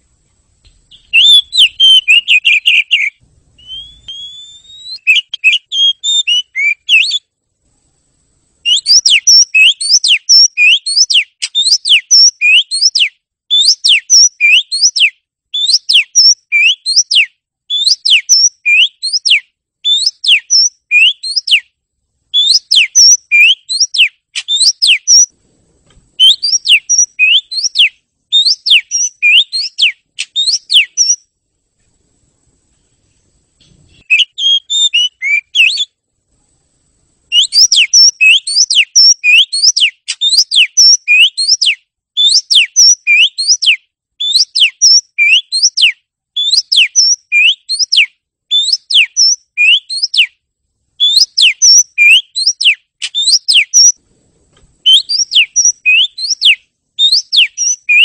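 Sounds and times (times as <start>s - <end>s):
lower rough bird notes: 0.0s - 7.0s
bird singing rising whistles: 0.9s - 7.3s, 8.6s - 21.7s, 22.3s - 25.3s, 26.2s - 31.3s, 33.8s - 36.0s, 37.3s - 50.4s, 51.0s - 54.0s, 54.8s - 58.0s.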